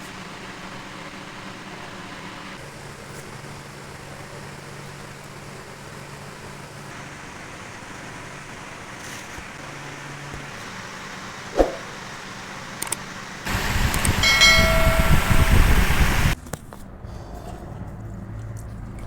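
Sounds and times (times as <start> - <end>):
mechanical hum: 0.0 - 16.4
noisy hiss: 9.6 - 16.4.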